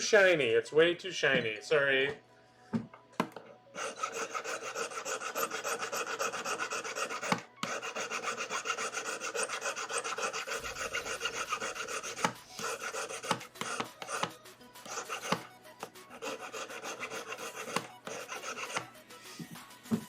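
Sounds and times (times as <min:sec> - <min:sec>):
file rasping on metal ring: 0:03.8 - 0:19.0.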